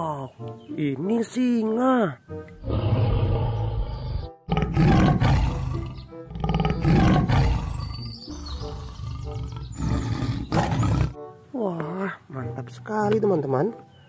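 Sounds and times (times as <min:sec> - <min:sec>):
lions roaring: 0:02.6 - 0:11.2.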